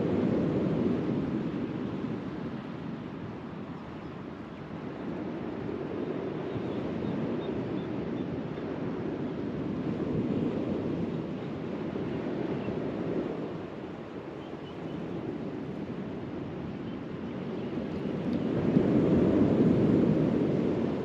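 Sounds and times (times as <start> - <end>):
wind buffeting microphone: 0.0 - 21.0
waves washing ashore: 8.4 - 21.0.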